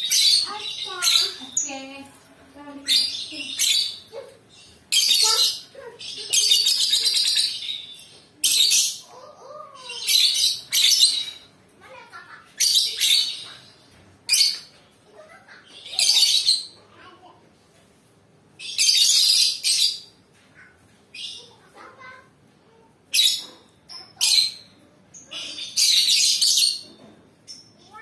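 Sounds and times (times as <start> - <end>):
lovebird chattering: 2.8 - 11.4.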